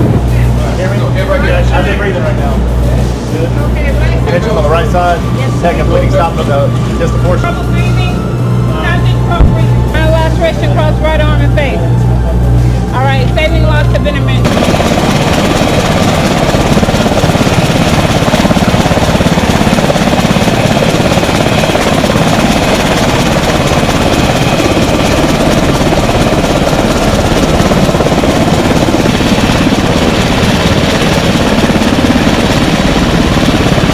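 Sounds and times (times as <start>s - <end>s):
helicopter running: 0.0s - 33.9s.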